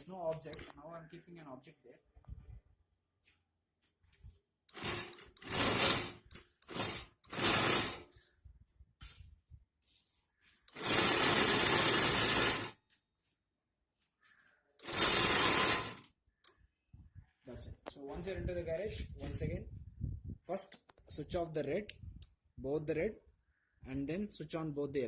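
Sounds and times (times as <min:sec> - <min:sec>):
small geared motor whirring: 0:04.7 - 0:08.1, 0:10.7 - 0:12.8, 0:14.8 - 0:16.1.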